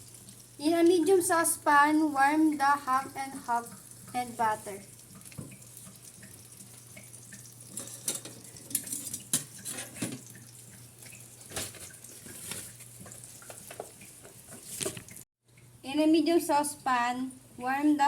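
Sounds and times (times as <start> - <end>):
utensil scraping metal saucepan: 7.7 - 10.2.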